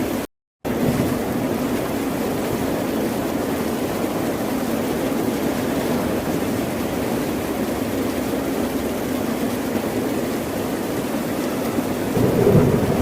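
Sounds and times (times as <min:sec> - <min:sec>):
ocean surf rushing: 0:12.1 - 0:13.0.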